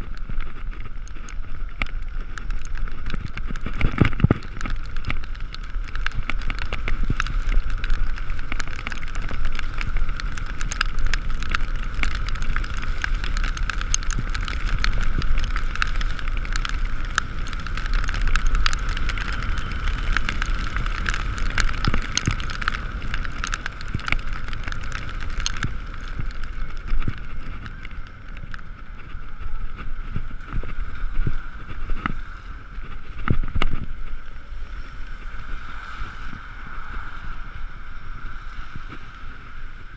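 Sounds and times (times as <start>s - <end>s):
small ticks and knocks: 0.0s - 34.0s
electric scooter drive whine: 0.0s - 39.9s
tyre spray on wet road: 0.0s - 39.9s
wind noise: 0.0s - 39.9s.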